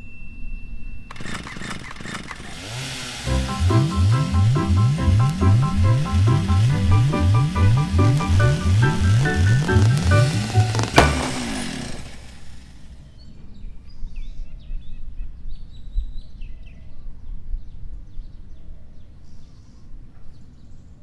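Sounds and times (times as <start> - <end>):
loud bang echo: 10.9 - 12.4.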